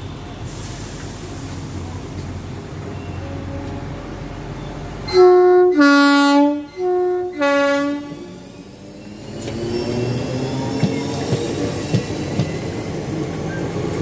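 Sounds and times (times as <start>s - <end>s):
train rumble: 0.0s - 14.0s
train two-tone horn: 2.9s - 8.6s.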